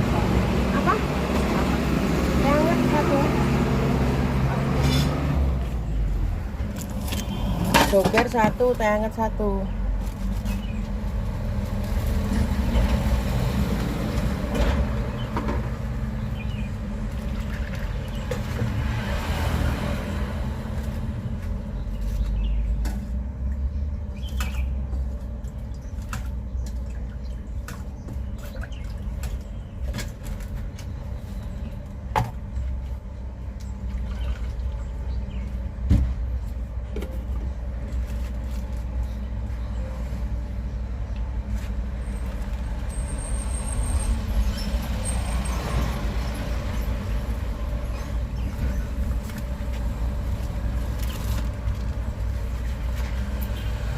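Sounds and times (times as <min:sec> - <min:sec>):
traffic rumble: 0:00.0 - 0:53.9.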